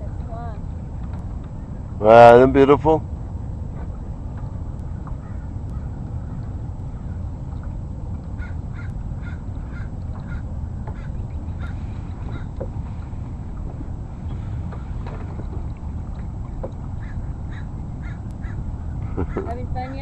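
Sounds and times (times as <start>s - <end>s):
steady low rumble: 0.0s - 20.0s
bird calling: 4.8s - 7.3s, 8.3s - 13.0s, 16.8s - 20.0s.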